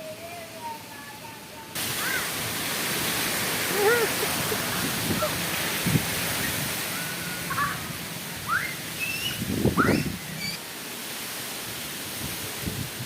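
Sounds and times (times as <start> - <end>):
strong wind gusting through trees: 0.0 - 13.0
short rising-and-falling call: 8.5 - 10.6.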